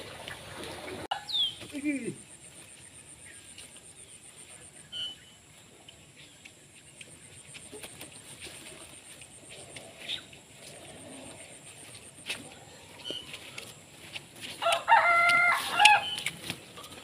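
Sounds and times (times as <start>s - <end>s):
faint animal sounds: 1.1s - 13.9s.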